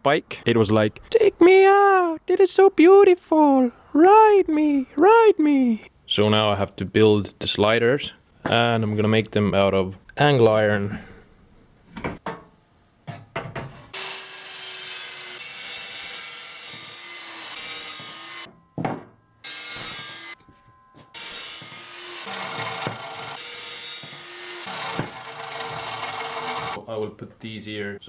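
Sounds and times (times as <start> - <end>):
power tool cutting steel: 13.9 - 18.5, 19.4 - 20.4, 21.1 - 26.8.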